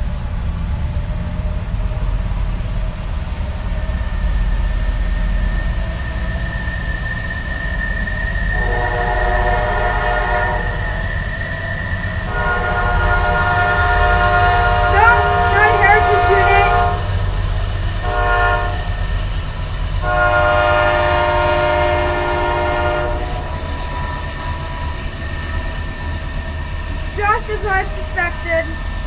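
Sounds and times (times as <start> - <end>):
train rumbling: 0.0 - 29.0
train horn blasts: 8.5 - 11.1, 12.2 - 17.4, 18.0 - 19.2, 20.0 - 24.8.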